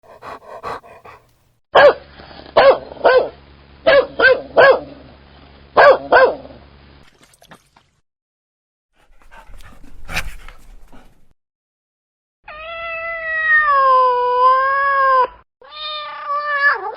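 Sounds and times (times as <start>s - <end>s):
dog barking: 1.8s - 5.0s, 5.8s - 6.6s.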